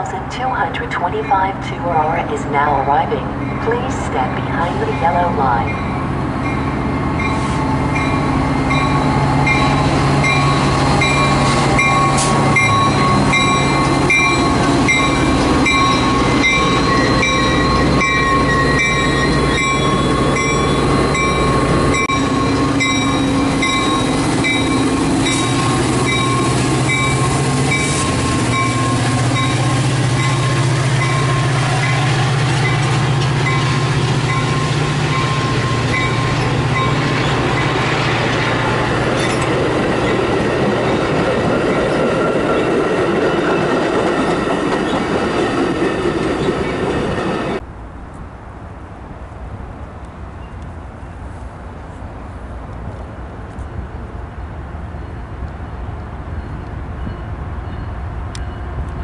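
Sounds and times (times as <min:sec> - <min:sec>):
diesel locomotive engine rumble: 0:00.0 - 0:59.0
locomotive bell ringing: 0:00.8 - 0:47.6.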